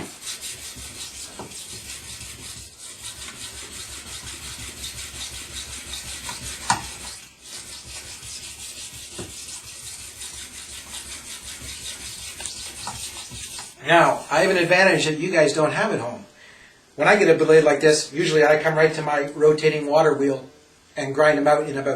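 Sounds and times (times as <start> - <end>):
knife grinding on a whetstone: 0.0 - 14.8.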